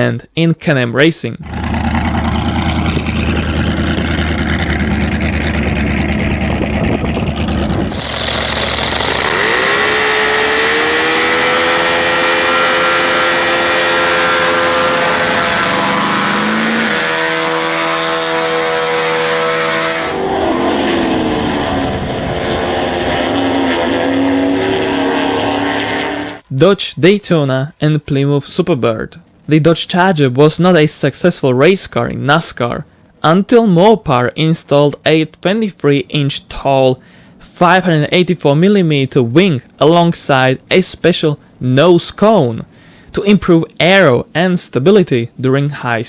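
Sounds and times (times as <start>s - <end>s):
racing car engines revving: 1.4s - 26.4s.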